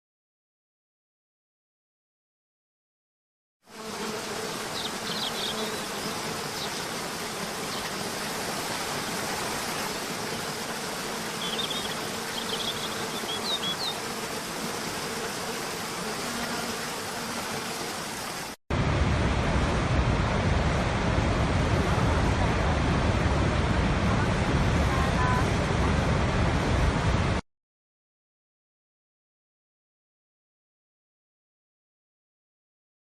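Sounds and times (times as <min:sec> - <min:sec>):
flying insects buzzing: 0:03.7 - 0:18.6
loud rushing sound: 0:18.7 - 0:24.9.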